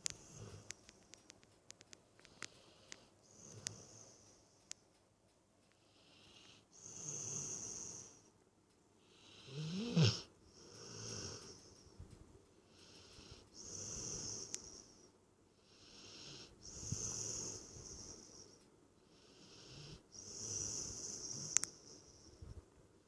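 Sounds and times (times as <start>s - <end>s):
dog snoring: 0.0s - 0.8s, 2.3s - 4.3s, 5.8s - 8.3s, 9.0s - 11.8s, 12.7s - 15.0s, 15.6s - 22.3s.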